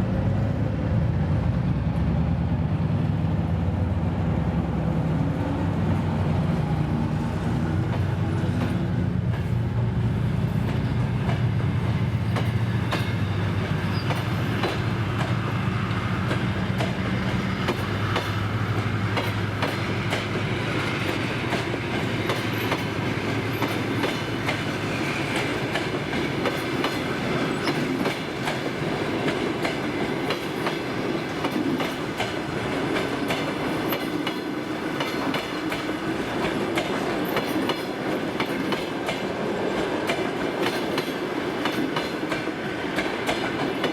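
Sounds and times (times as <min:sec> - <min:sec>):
diesel locomotive engine drone: 0:00.0 - 0:43.9
train wheels clicking over rail joints: 0:10.3 - 0:43.9.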